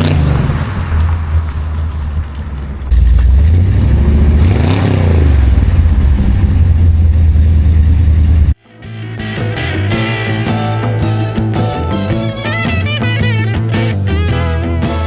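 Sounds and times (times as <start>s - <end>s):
car engine rumbling: 0.0s - 14.8s
music: 8.6s - 15.0s.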